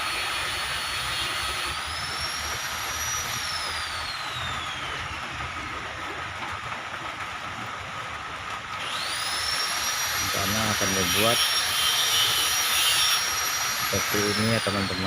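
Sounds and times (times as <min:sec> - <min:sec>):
cutting disc whining on steel: 0:00.0 - 0:05.6, 0:08.8 - 0:15.0.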